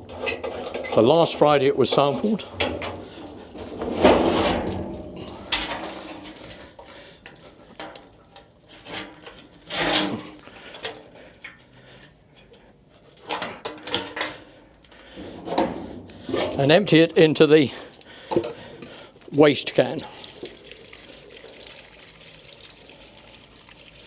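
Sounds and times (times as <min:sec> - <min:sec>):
metal can knocking and clattering: 0:00.0 - 0:08.2, 0:15.1 - 0:19.0.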